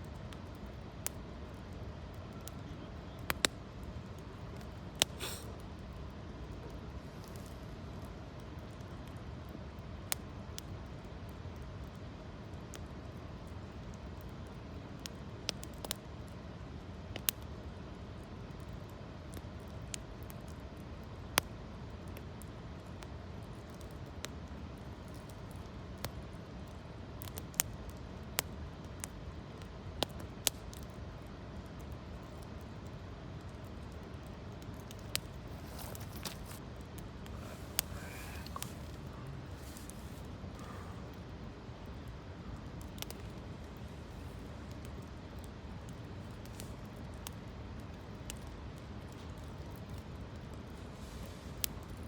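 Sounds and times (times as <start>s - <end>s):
campfire crackling: 0.0s - 52.0s.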